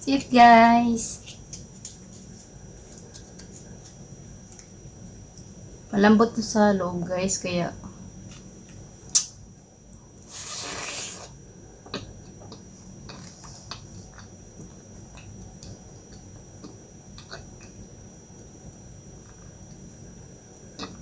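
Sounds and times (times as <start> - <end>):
sharp click: 9.1 - 9.4
brief hiss: 10.3 - 11.3.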